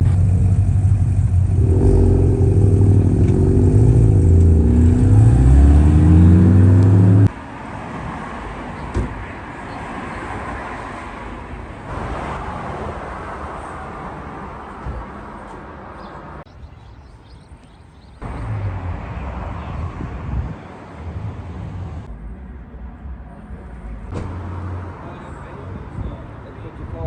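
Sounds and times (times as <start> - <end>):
car engine revving: 0.0 - 7.4
outdoor background noise: 0.0 - 27.0.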